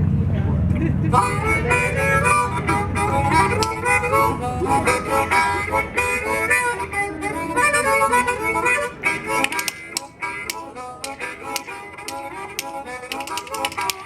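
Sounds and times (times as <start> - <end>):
low accompaniment: 0.0 - 14.0
harmonica playing folk-blues tune: 1.1 - 14.0
sharp clacks: 3.2 - 3.8, 9.4 - 14.0.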